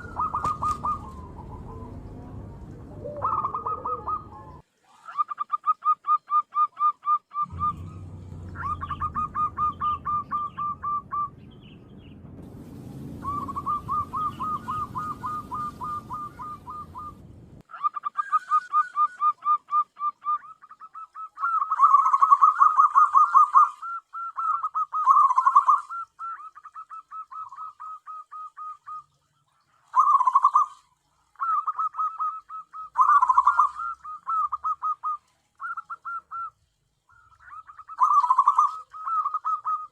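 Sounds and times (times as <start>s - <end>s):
low rumble: 0.0s - 4.6s, 7.5s - 17.6s
dove cooing: 0.0s - 11.4s, 13.2s - 29.0s, 29.9s - 39.9s.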